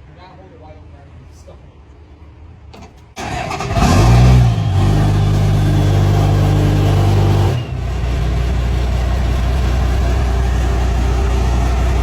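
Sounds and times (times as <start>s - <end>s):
diesel pickup engine idling: 3.2s - 12.0s.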